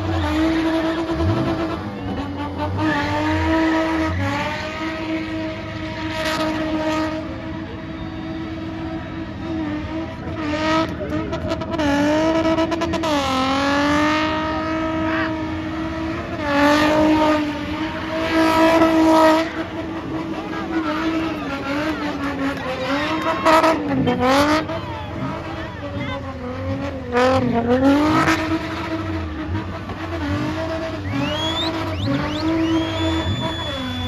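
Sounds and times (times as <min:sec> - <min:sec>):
car engine at high revs: 0:00.0 - 0:34.0.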